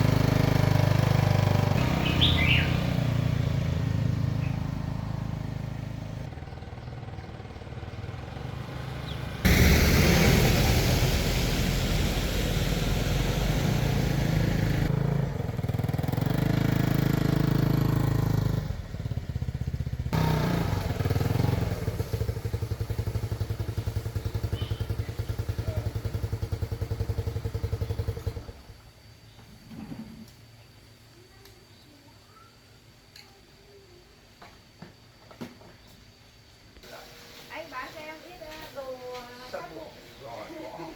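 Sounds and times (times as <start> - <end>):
small engine running: 0.0 - 28.8.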